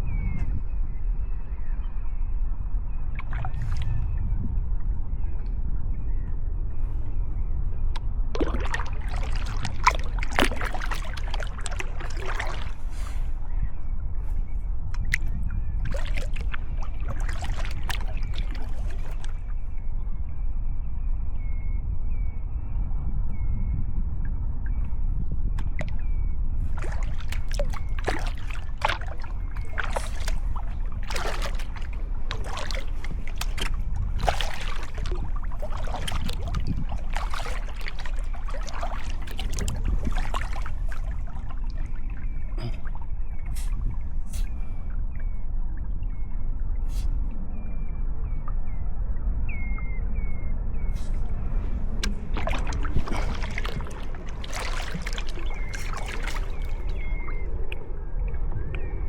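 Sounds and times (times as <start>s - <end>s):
steady low rumble: 0.0s - 59.0s
paddle splashing in water: 3.2s - 3.9s, 8.3s - 13.3s, 14.9s - 19.5s, 26.6s - 44.7s, 51.0s - 57.8s
water dripping and trickling: 8.4s - 12.8s, 14.9s - 19.4s, 26.7s - 42.8s, 52.0s - 58.8s.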